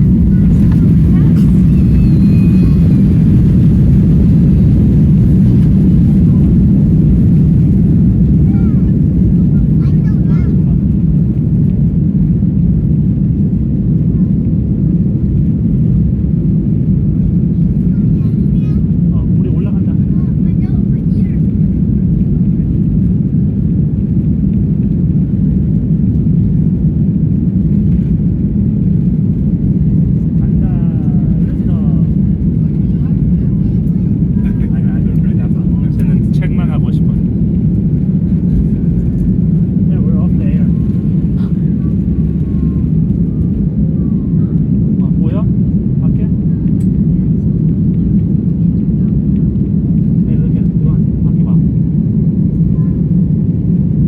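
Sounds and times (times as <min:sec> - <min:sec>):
rushing air: 0:00.0 - 0:09.8
airplane engines rumbling: 0:00.0 - 0:54.0.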